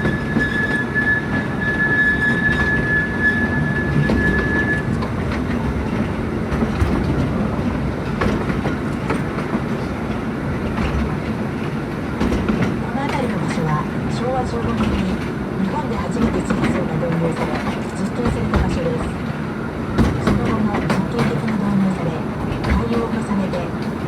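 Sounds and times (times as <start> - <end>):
high wheel squeal: 0.0 - 5.1
train rumbling: 0.0 - 24.0.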